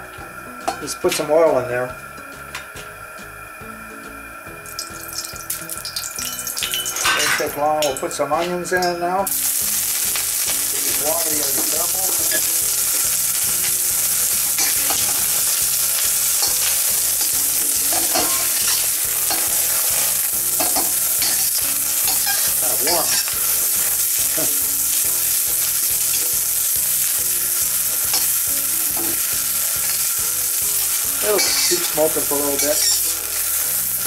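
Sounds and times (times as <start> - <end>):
onions sizzling in hot oil: 0.0 - 34.0
metal spatula scraping wok: 10.1 - 26.2, 27.5 - 34.0.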